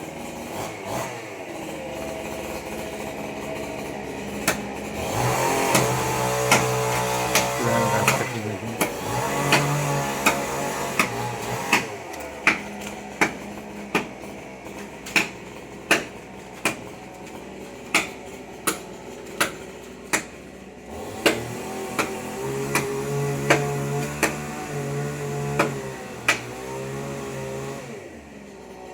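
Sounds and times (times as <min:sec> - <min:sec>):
machete chopping into tree trunk: 0:04.4 - 0:14.2, 0:14.8 - 0:16.9, 0:17.9 - 0:20.4, 0:21.1 - 0:24.6, 0:25.5 - 0:26.6.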